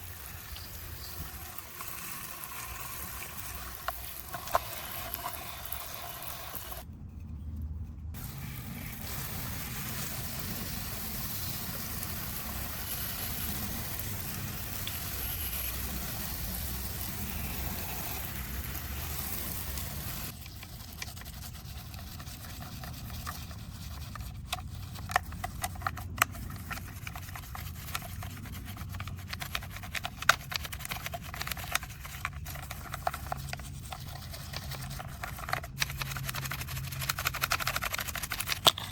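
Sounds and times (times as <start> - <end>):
water spraying with a hiss: 0.0 - 6.8, 8.2 - 20.3.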